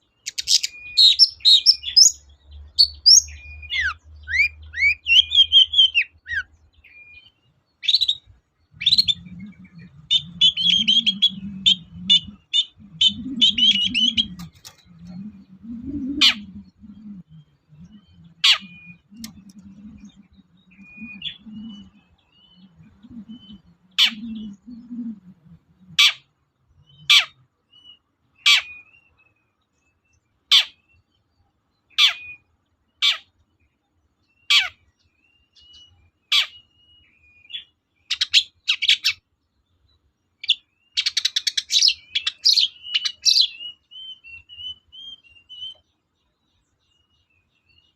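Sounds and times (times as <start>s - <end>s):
harsh downward bird calls: 0.0s - 31.0s, 31.9s - 33.4s, 34.4s - 39.3s, 40.4s - 46.0s
bird chattering calls: 7.8s - 26.2s
low rumble: 8.7s - 25.9s.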